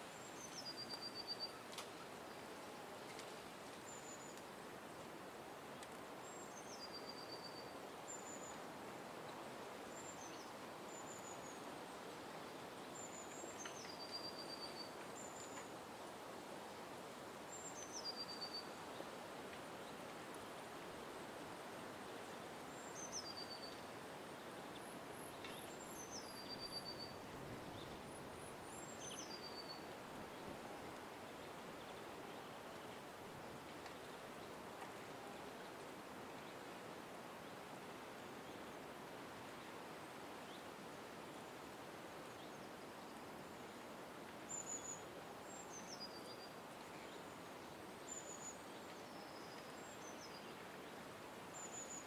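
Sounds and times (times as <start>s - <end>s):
small bird singing: 28.6s - 30.5s.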